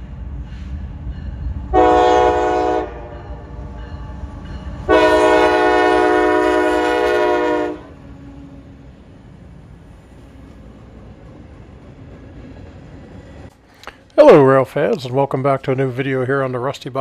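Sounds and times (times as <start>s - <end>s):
train rumbling: 0.0s - 17.0s
locomotive air horn blasts: 1.7s - 3.2s, 4.9s - 8.0s.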